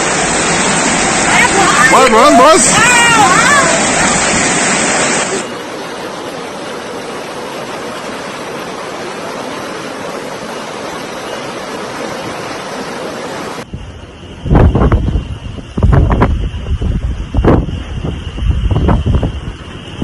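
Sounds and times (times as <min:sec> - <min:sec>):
water rushing: 0:00.0 - 0:13.8.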